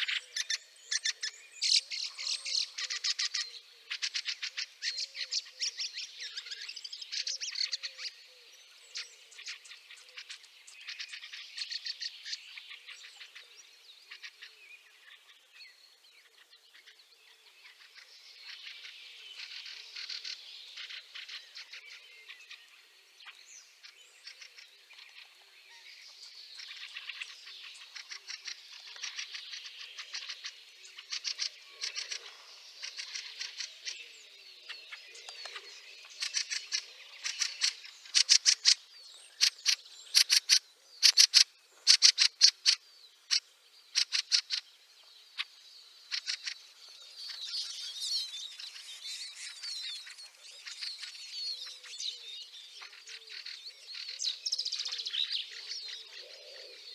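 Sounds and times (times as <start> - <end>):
birds chattering and clacking: 17.6 - 56.9.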